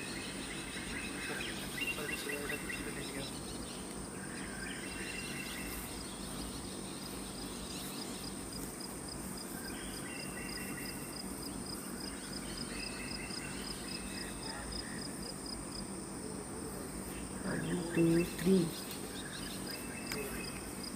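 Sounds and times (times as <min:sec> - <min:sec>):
pulsing insect chirp: 0:00.0 - 0:20.9.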